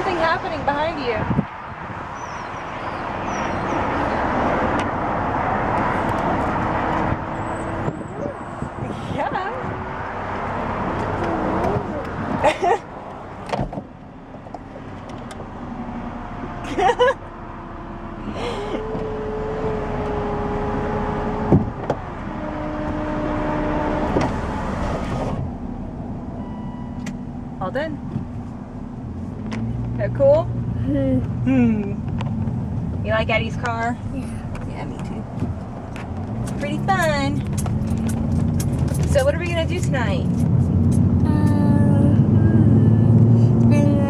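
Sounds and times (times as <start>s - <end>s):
road noise inside a car: 0.0s - 44.0s
window stopping thunk: 21.4s - 22.0s.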